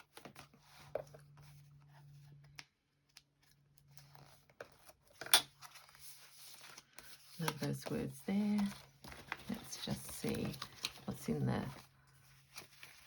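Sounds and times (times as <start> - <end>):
paper rustling: 3.4 - 13.0.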